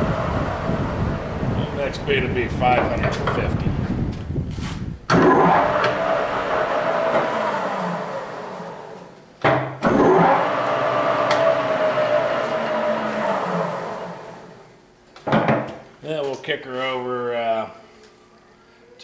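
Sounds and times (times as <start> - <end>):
lathe gear whine: 0.0 - 2.5, 5.1 - 9.2, 9.8 - 14.7.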